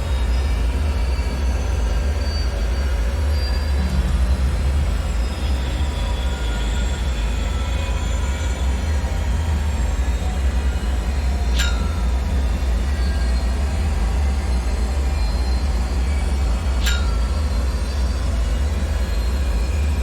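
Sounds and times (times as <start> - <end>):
faint high metallic whines: 0.0 - 20.0
deep rumble: 3.5 - 20.0
sharp ringing ticks: 10.9 - 20.0.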